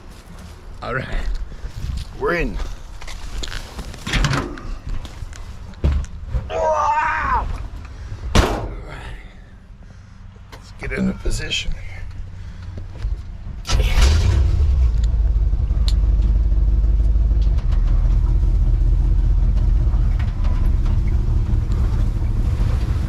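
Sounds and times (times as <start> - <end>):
pickup truck engine revving: 13.7 - 23.0.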